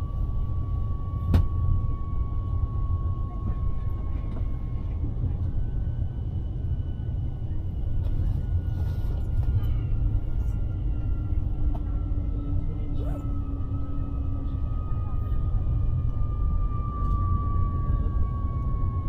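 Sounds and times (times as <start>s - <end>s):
faint whining tones: 0.0s - 19.0s
train running rumble: 3.1s - 14.7s.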